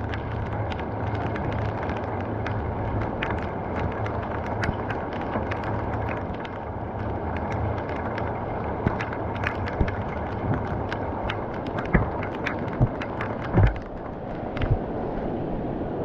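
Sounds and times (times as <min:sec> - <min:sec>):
heavy rain: 0:00.0 - 0:15.6
low thumps: 0:11.3 - 0:13.9.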